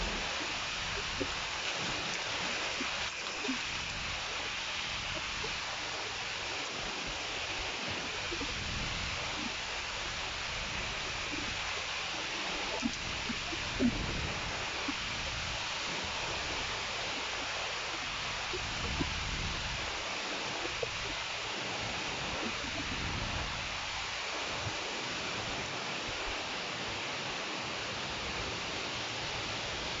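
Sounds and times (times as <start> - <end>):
raindrops ticking nearby: 0.0 - 24.0
heavy rain pouring: 0.0 - 30.0.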